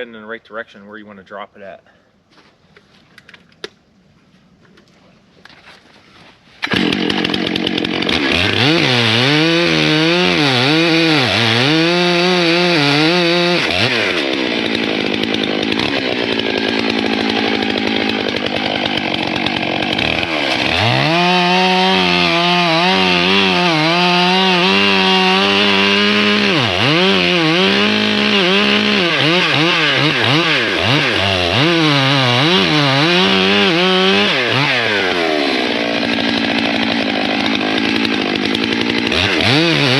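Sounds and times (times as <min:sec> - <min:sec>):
chainsaw cutting into tree trunk: 0:06.6 - 0:39.9.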